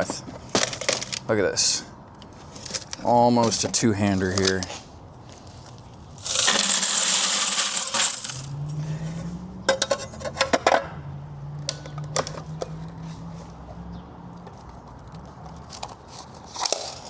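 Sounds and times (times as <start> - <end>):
coins clinking: 0.7 - 1.2, 6.2 - 8.7
coins pouring out: 6.2 - 8.6.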